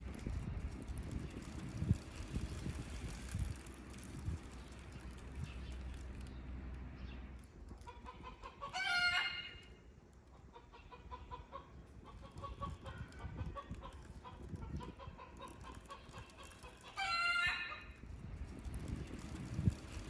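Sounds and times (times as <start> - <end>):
chicken calling: 7.9 - 9.7, 16.6 - 17.9.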